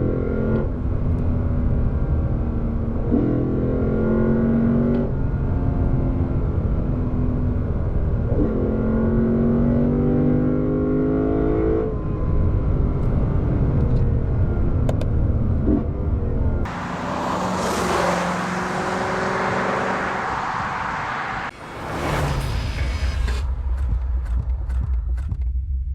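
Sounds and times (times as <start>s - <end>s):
wind and tyre noise: 0.0s - 25.5s
car engine accelerating: 0.0s - 25.9s.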